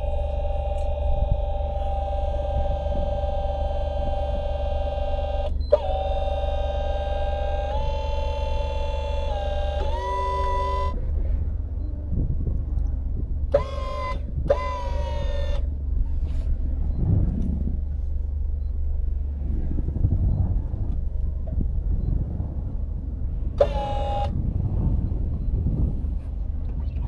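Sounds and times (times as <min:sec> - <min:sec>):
vehicle engine rumbling: 0:00.0 - 0:27.0
car horn toots: 0:06.5 - 0:11.0, 0:13.6 - 0:15.4.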